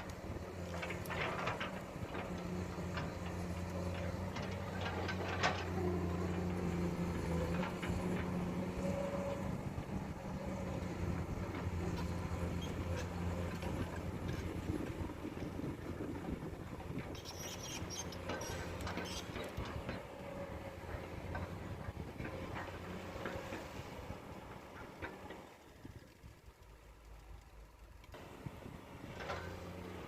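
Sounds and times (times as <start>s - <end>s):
excavator diesel engine droning: 0.1s - 17.0s.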